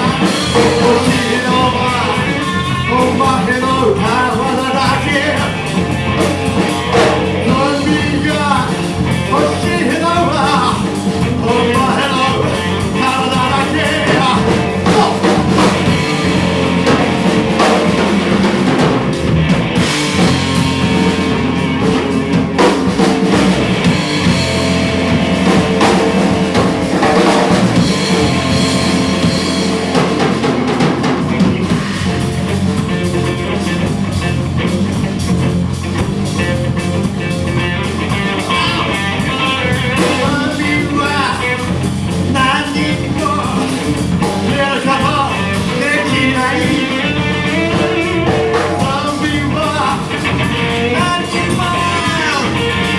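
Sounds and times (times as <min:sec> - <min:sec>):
person singing: 0:00.0 - 0:05.9, 0:06.9 - 0:16.0, 0:38.4 - 0:41.7, 0:42.4 - 0:52.9
drums: 0:00.0 - 0:52.9
rock band playing live: 0:00.0 - 0:52.9.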